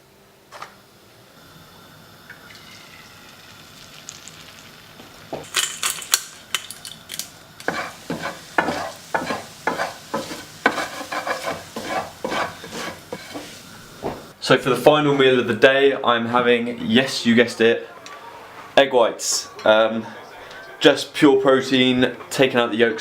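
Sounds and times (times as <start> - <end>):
eggs sizzling in a pan: 1.4 - 14.4
utensil scraping a pan: 7.6 - 13.7.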